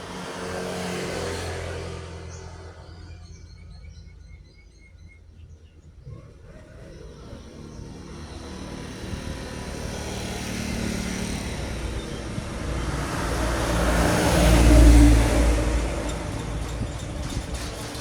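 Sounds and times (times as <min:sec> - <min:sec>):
heavy truck passing by: 0:07.3 - 0:18.0.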